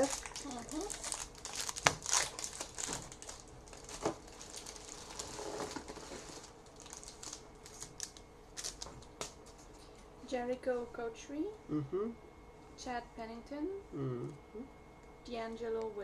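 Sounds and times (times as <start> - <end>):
wrapper crinkling: 0.0 - 9.5.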